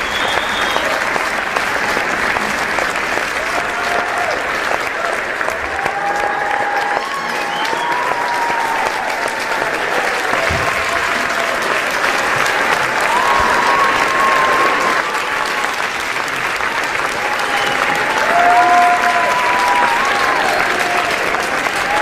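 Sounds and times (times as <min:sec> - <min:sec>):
audience clapping: 0:00.0 - 0:22.0
crowd shouts and cheers: 0:00.0 - 0:22.0.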